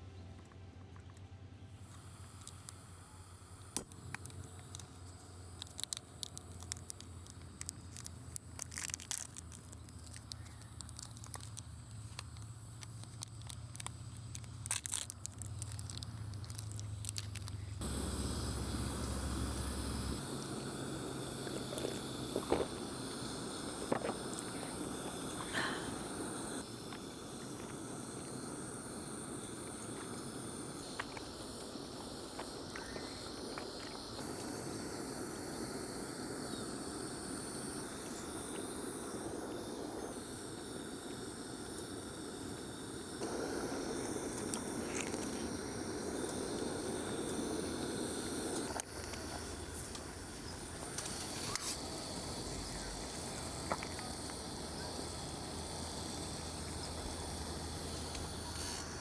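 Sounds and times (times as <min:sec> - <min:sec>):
outdoor background hiss: 0:00.0 - 0:59.0
faint insect-like buzzing: 0:17.8 - 0:59.0.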